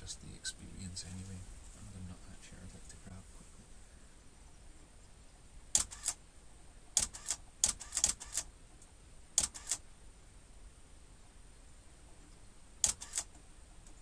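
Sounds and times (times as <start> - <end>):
camera shutter clicks: 5.7 - 6.2, 7.0 - 8.5, 9.4 - 9.8, 12.8 - 13.3.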